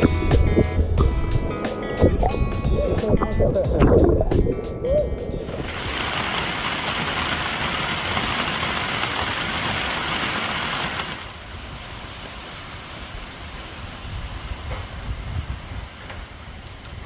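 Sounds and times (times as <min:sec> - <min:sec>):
low rumble: 0:00.0 - 0:05.7
heavy rain hissing: 0:05.3 - 0:17.0.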